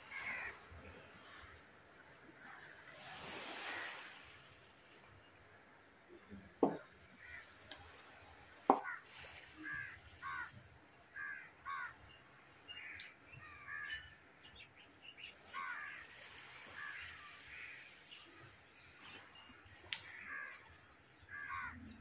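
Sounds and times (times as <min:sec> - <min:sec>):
crows cawing: 0:00.1 - 0:00.6, 0:07.2 - 0:07.5, 0:08.7 - 0:09.0, 0:09.6 - 0:10.6, 0:11.2 - 0:12.0, 0:12.8 - 0:14.0, 0:15.5 - 0:16.2, 0:16.8 - 0:17.9, 0:20.0 - 0:21.8.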